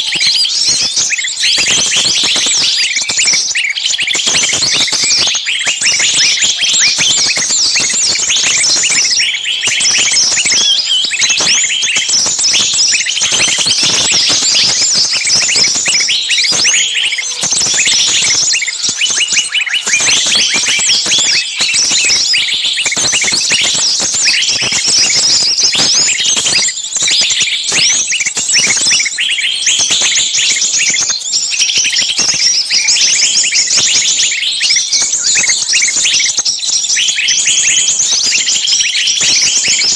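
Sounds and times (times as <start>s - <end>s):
chorus of quick high chirps: 0.0s - 39.9s.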